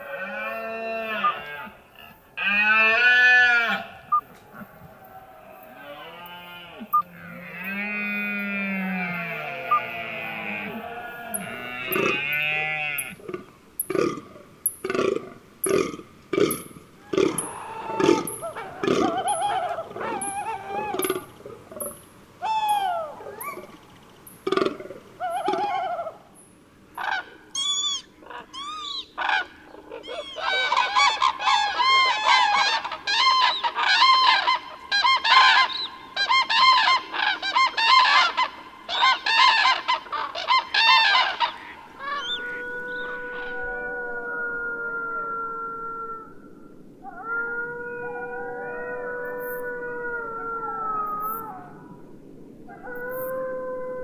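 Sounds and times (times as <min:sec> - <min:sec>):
birds honking: 0:17.2 - 0:26.4, 0:27.0 - 0:43.7.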